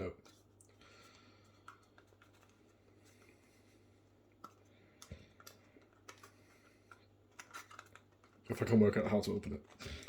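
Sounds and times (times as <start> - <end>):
faint clicks and taps on packaging: 1.4 - 2.6, 4.3 - 8.5.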